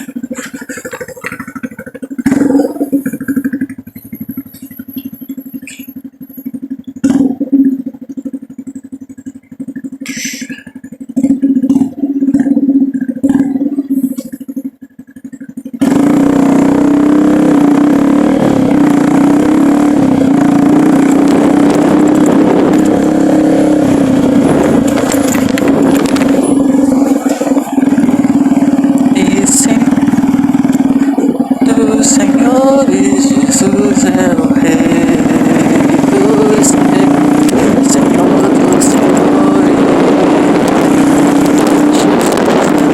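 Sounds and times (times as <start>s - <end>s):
motorcycle engine running: 0.0s - 42.9s
loud steady rush: 15.8s - 42.9s.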